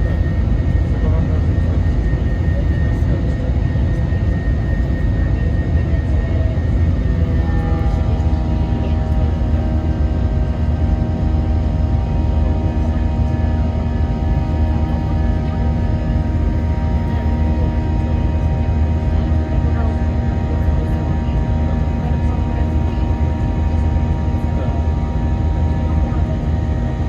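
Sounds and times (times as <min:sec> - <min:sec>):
jet engine and airflow roar: 0:00.0 - 0:27.0
whining engine tones: 0:00.0 - 0:27.0.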